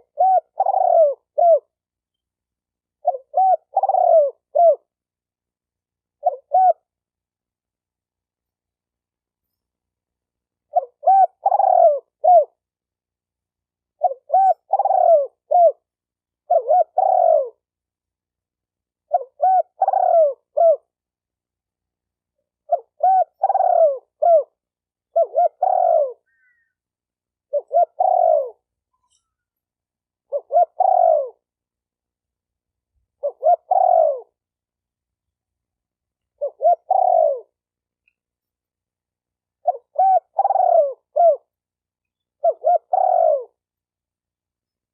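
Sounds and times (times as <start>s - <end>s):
dove cooing: 0.0s - 1.8s, 3.0s - 4.9s, 6.2s - 6.9s, 10.7s - 12.6s, 14.0s - 17.7s, 19.0s - 20.9s, 22.6s - 26.7s, 27.5s - 28.7s, 30.2s - 31.5s, 33.2s - 34.4s, 36.4s - 37.6s, 39.6s - 41.6s, 42.4s - 43.7s.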